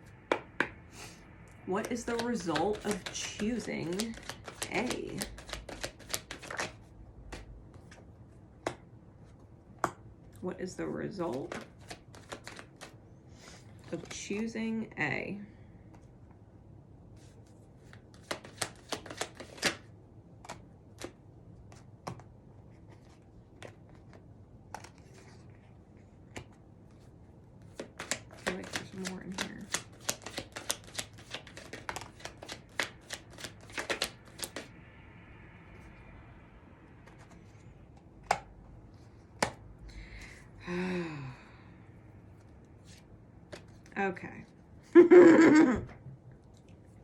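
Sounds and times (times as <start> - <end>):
card clicks: 1.8 - 7.5, 27.8 - 34.7
cards being shuffled: 1.8 - 8.0, 11.2 - 13.0, 17.2 - 25.5, 27.6 - 34.7, 42.8 - 44.0.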